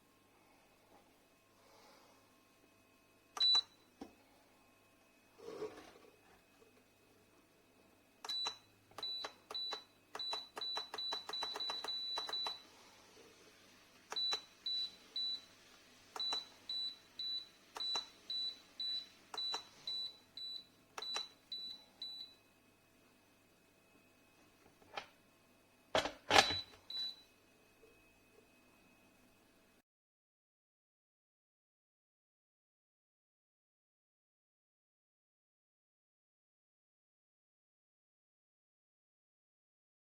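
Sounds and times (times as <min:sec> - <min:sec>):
kettle control panel beeps: 0:03.3 - 0:03.9, 0:08.2 - 0:12.7, 0:14.1 - 0:22.5, 0:26.0 - 0:27.3.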